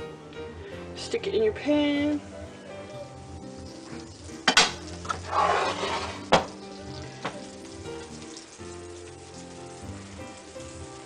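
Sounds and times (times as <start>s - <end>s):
soft background music: 0.0s - 11.0s
cutlets sizzling in hot oil: 1.2s - 11.0s.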